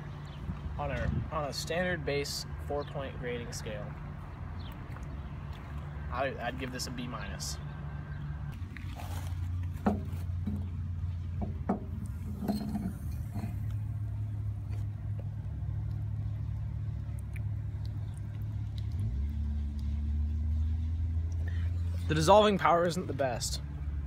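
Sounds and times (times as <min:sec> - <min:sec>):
vehicle engine rumble: 0:00.0 - 0:24.0
small knocks: 0:09.7 - 0:10.8, 0:11.4 - 0:13.7.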